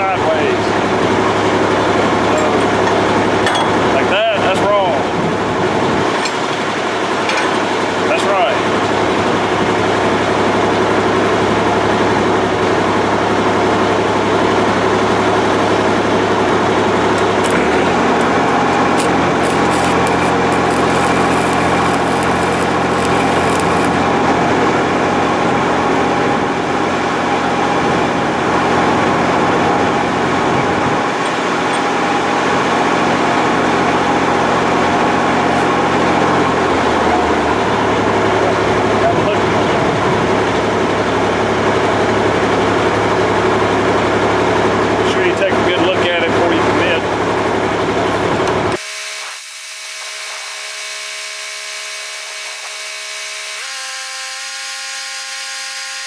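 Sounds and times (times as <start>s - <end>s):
engine humming: 0.6s - 4.2s, 4.8s - 10.1s, 15.0s - 24.6s, 27.4s - 39.0s.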